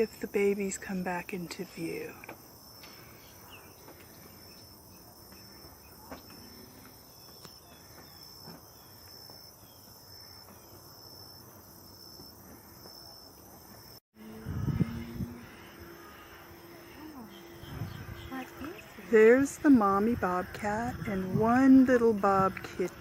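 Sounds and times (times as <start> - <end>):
insects chirping: 0.0 - 23.0.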